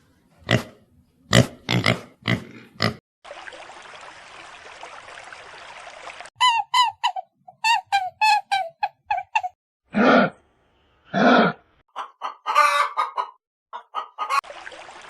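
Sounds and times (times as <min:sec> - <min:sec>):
animal grunts: 0:00.5 - 0:03.0, 0:09.9 - 0:10.4, 0:11.1 - 0:11.7.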